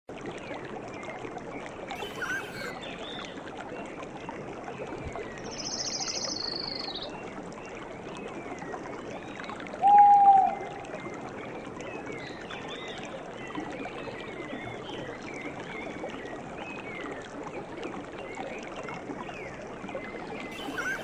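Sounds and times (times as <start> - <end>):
running water: 0.1 - 21.0
small birds chirping: 2.0 - 3.1, 20.5 - 21.0.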